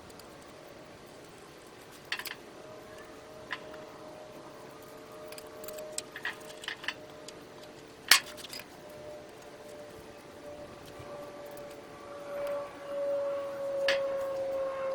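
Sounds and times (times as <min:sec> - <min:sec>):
faint steady hum: 0:00.0 - 0:14.9
light metallic clicks and clinks: 0:04.6 - 0:09.9.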